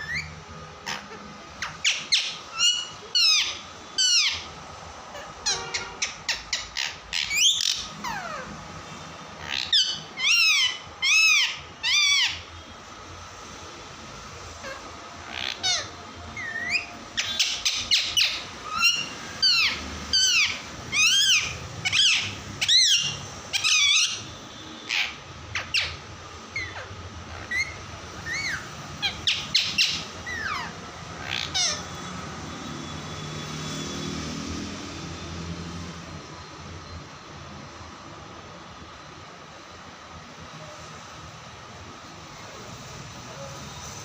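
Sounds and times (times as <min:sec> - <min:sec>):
parrot chirping: 0:00.0 - 0:08.7, 0:09.4 - 0:12.6, 0:14.2 - 0:33.6.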